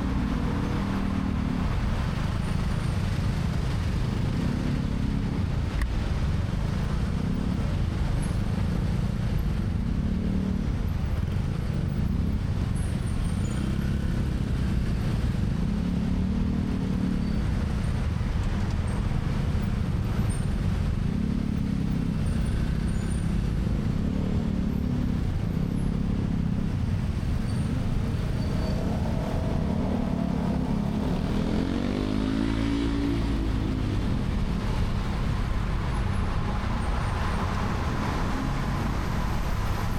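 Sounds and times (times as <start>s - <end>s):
wind and road noise: 0.0s - 39.9s
motorcycle engine rumbling: 19.7s - 39.9s.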